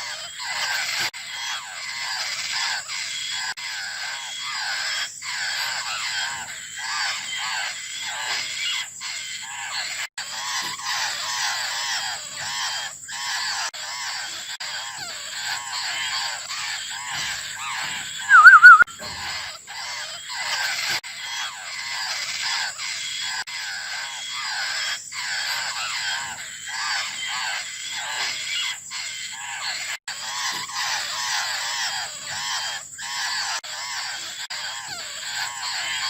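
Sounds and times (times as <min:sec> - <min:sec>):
young birds begging calls: 0:00.0 - 0:36.0
loud warbling bird call: 0:14.7 - 0:19.5.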